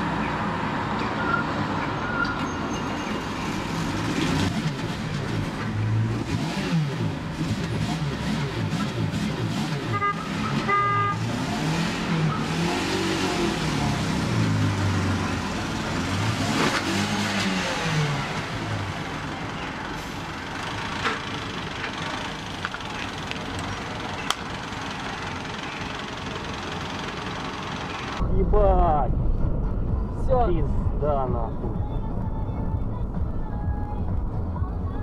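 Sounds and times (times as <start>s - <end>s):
road noise: 0.0s - 35.0s
car horn toots: 9.8s - 11.4s.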